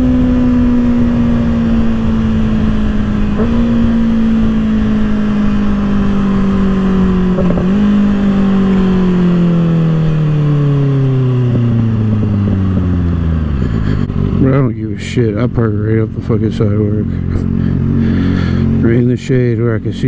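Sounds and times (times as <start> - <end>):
motorcycle engine decelerating: 0.0 - 20.0
wind noise: 11.3 - 14.4.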